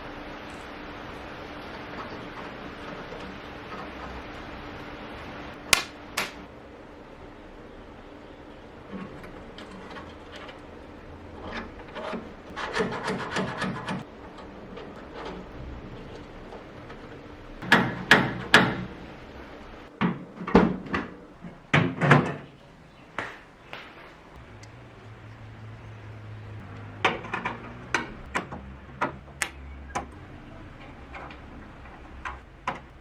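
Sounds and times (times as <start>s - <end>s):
sharp knocks and taps: 23.2s - 24.0s.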